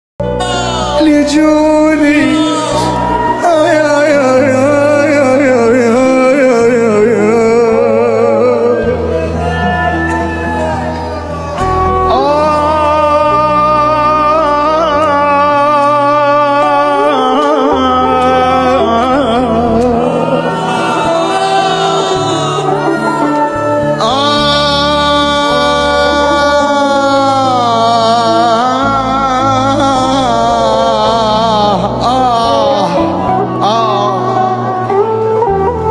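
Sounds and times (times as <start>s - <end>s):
man singing a devotional chant: 0.9s - 9.0s, 24.0s - 34.6s.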